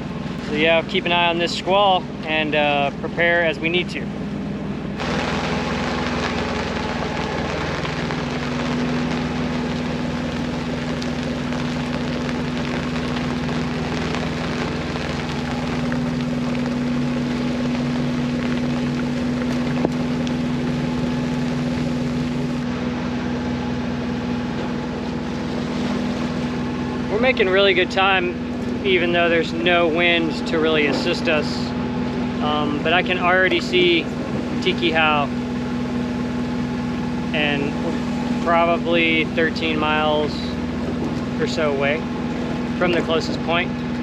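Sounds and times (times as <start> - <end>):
boat engine humming: 0.0 - 44.0
wind and water hiss: 0.0 - 44.0.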